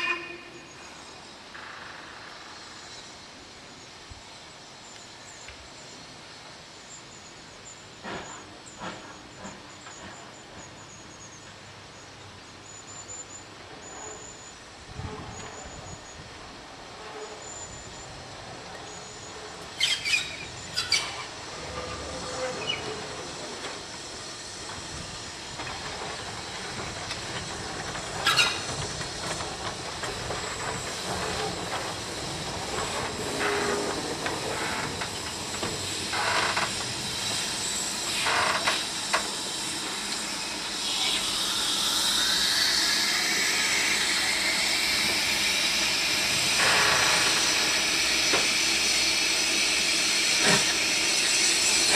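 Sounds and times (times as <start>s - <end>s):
steam locomotive hissing: 12.8s - 51.9s.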